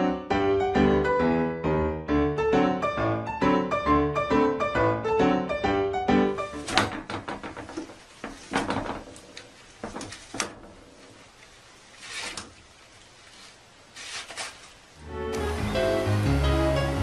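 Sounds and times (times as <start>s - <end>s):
music: 0.0s - 6.8s, 15.0s - 17.0s
paper rustling: 6.4s - 15.0s
roll knocking against metal holder: 6.5s - 11.0s.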